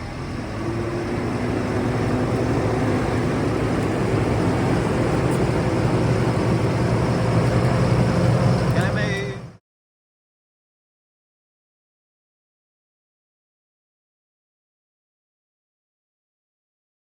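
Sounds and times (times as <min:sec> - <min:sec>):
wood chipper engine running: 0:00.0 - 0:09.6.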